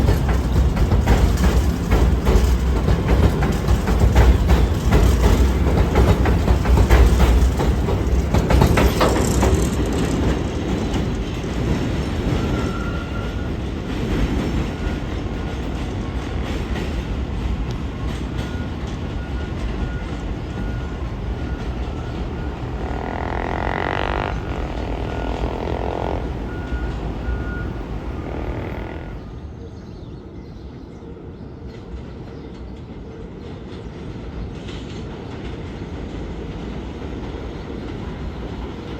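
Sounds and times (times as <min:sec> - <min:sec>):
subway train wheels rumbling: 0:00.0 - 0:38.9
faint steady whine: 0:20.6 - 0:29.3.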